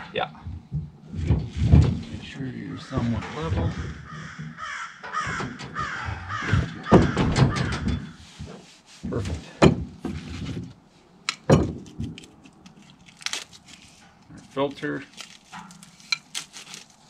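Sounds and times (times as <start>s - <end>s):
sharp knocks: 0.4s - 12.3s
bird cawing: 2.6s - 8.2s.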